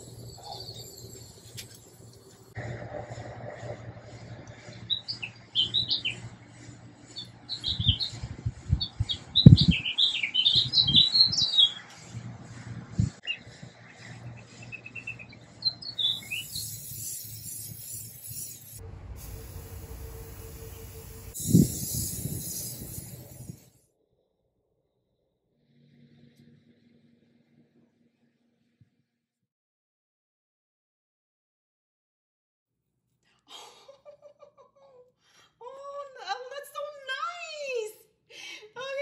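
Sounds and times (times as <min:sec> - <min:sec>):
small birds chirping: 0:00.0 - 0:02.2, 0:04.6 - 0:12.1, 0:13.2 - 0:18.8
faint hum: 0:00.0 - 0:09.5, 0:11.8 - 0:23.7
steady hiss: 0:16.2 - 0:23.7.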